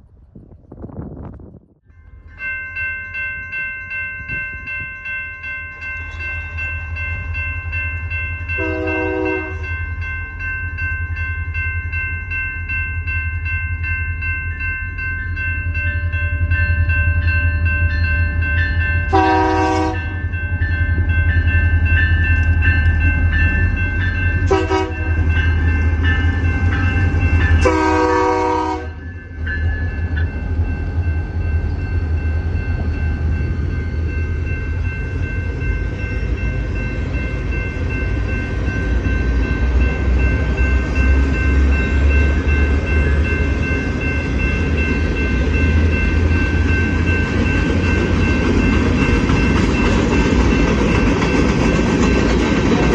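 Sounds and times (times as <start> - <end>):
grade crossing bells ringing: 1.9 - 52.9
locomotive air horn blasts: 8.6 - 9.6, 19.1 - 20.1, 24.5 - 25.2, 27.6 - 29.0.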